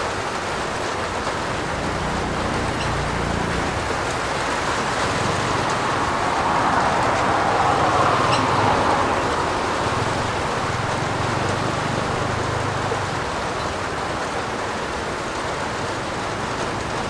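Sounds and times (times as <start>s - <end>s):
heavy rain on a roof: 0.0s - 17.0s.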